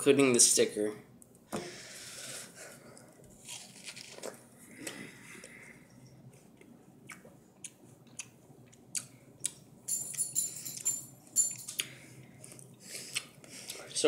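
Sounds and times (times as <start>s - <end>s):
chewing raw pear: 6.6s - 9.6s.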